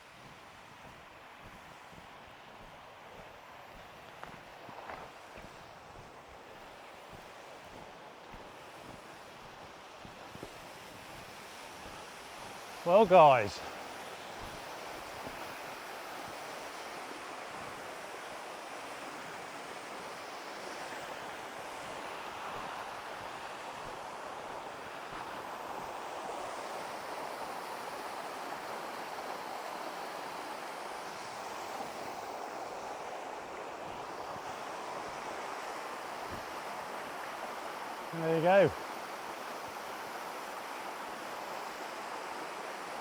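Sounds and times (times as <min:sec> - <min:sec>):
waterfall rushing: 0:12.9 - 0:13.6.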